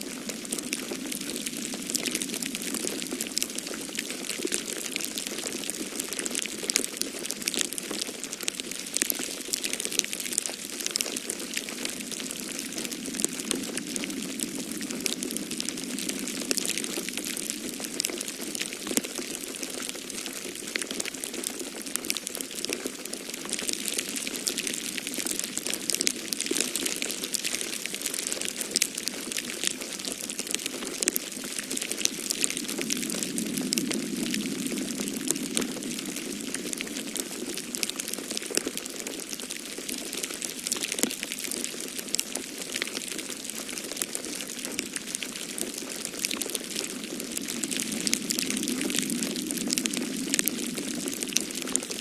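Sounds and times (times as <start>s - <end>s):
wood fire crackling: 0.0s - 52.0s
storm wind rushing: 12.7s - 17.8s, 32.0s - 37.7s, 46.6s - 52.0s.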